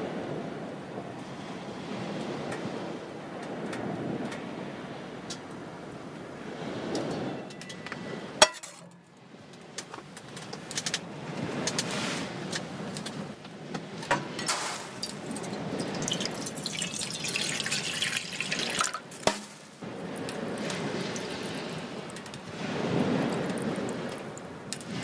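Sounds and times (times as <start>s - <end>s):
liquid trickling and splashing: 14.5s - 22.3s.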